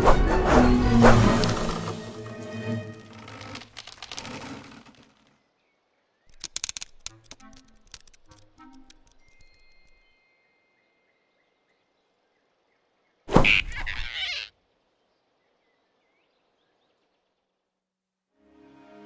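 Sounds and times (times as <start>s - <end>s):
music: 0.0s - 3.3s, 7.2s - 10.5s, 18.3s - 19.0s.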